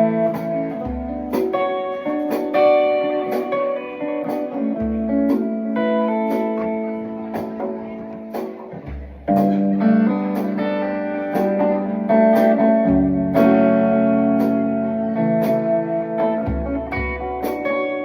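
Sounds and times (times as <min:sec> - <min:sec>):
ringing guitar notes and chords: 0:00.0 - 0:18.0.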